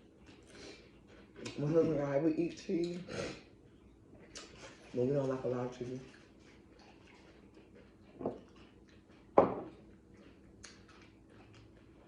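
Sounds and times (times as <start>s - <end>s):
faint room hum: 0.0s - 12.0s
knocks on a table: 9.4s - 9.7s.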